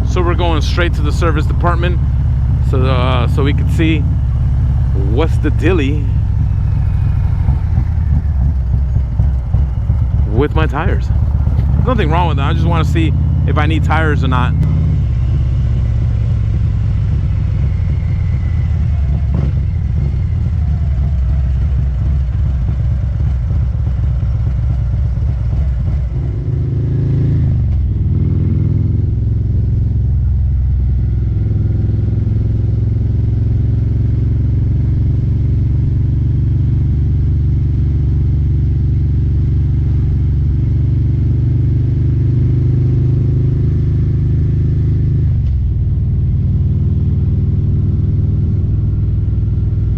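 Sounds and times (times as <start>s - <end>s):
motorcycle engine while riding: 0.0s - 49.9s.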